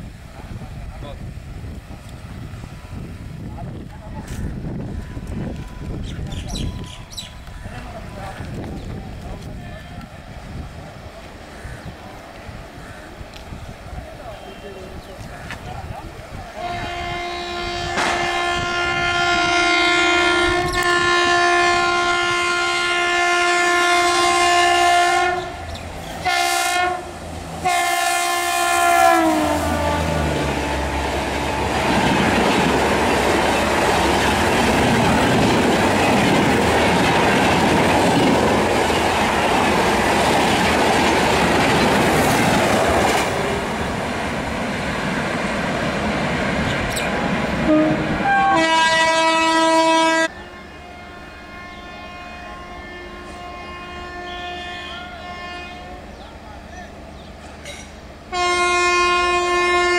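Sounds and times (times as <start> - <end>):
train rushing past: 0.0 - 50.8
train air horn blasts: 16.5 - 32.0, 47.6 - 56.2, 58.3 - 59.9.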